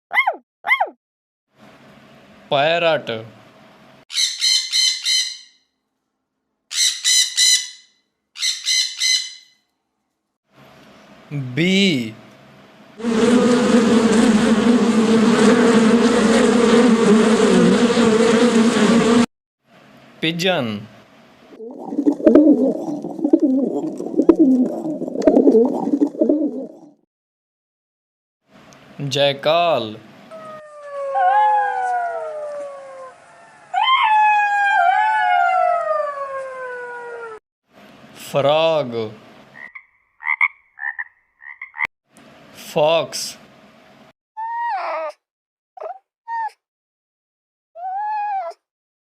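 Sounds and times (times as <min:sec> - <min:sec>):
bee buzzing in flight: 0:13.0 - 0:19.3
jackal howling: 0:30.3 - 0:37.4.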